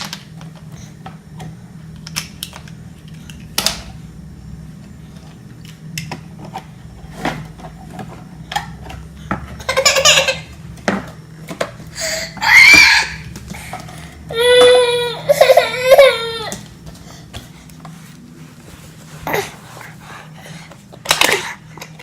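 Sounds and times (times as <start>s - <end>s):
steady low hum: 0.0s - 22.0s
baby squealing cry: 12.0s - 13.3s.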